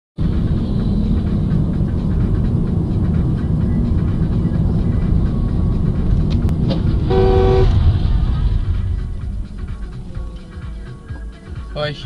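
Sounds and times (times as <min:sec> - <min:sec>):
road noise: 0:00.2 - 0:12.0
vehicle rumbling: 0:00.2 - 0:12.0.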